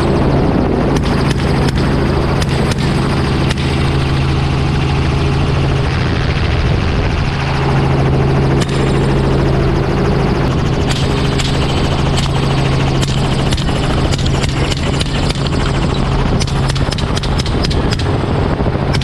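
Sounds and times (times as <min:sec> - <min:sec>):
sharp clicks: 0:00.0 - 0:04.2, 0:08.6 - 0:09.4, 0:10.3 - 0:19.0
helicopter rotor and engine drone: 0:00.0 - 0:19.0.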